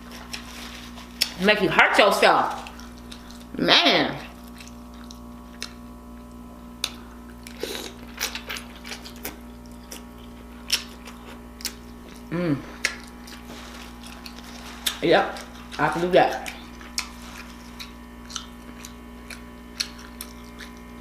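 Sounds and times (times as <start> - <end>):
low electrical hum: 0.0 - 21.0
lip smacks and chewing: 4.3 - 21.0
person humming: 12.3 - 12.8.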